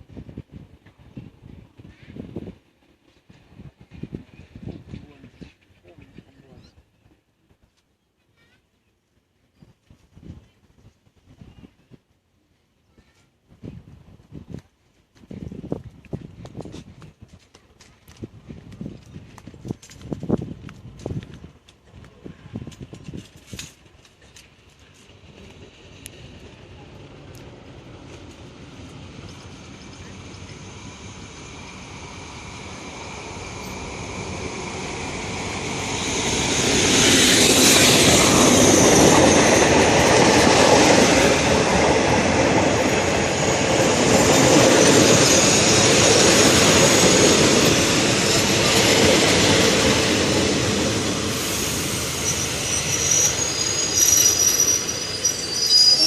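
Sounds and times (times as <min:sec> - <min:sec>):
passenger train running past: 0:00.0 - 0:07.7, 0:18.3 - 0:56.0
high wheel squeal: 0:51.2 - 0:56.0.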